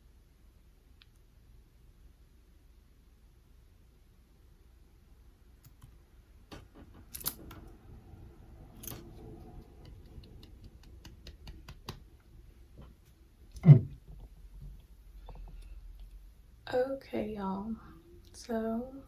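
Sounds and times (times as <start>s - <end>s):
heavy thud: 13.6s - 14.3s.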